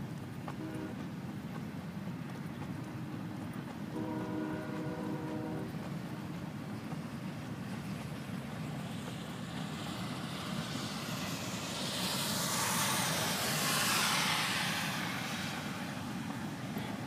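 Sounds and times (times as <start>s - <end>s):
freight train rumbling past: 0.0s - 17.0s
broad hiss: 7.9s - 17.0s.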